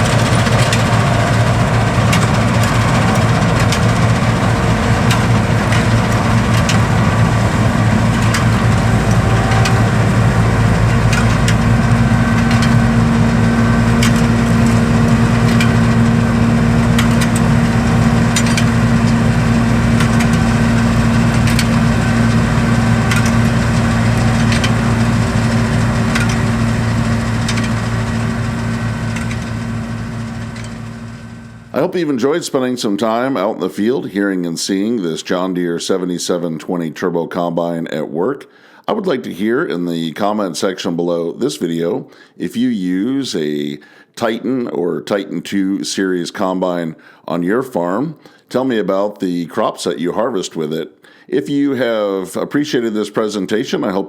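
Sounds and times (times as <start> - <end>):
threshing machinery hum: 0.0 - 31.8
combine engine drone: 0.0 - 32.0
steady higher hum: 0.0 - 32.0.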